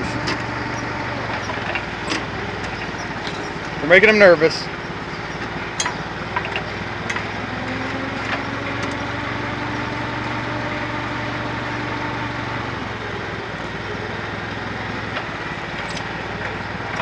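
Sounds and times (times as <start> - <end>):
forklift engine hum: 0.0 - 17.0.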